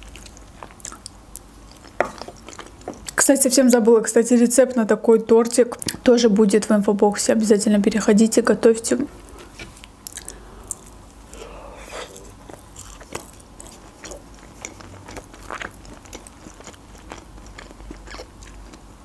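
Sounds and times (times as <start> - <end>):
chewing crunches: 0.0 - 3.2, 10.0 - 11.2, 11.8 - 18.9.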